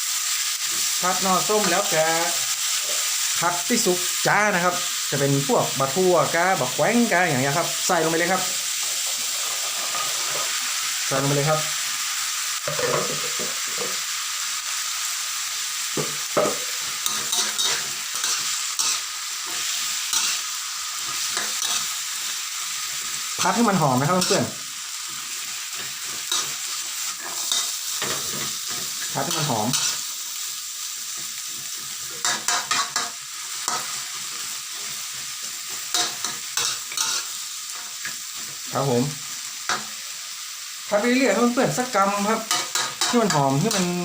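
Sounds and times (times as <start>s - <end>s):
vegetables sizzling in hot oil: 0.0s - 44.0s
spatula scraping and knocking pan: 12.7s - 14.0s, 16.0s - 20.4s.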